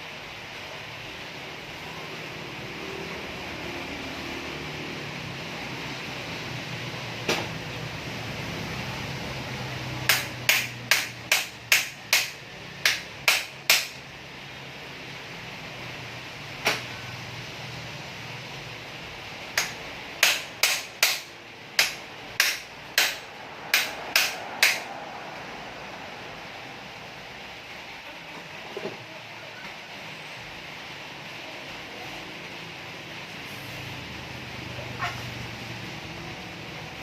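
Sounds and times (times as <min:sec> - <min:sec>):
hammer striking metal: 0:10.1 - 0:14.0, 0:19.6 - 0:24.9.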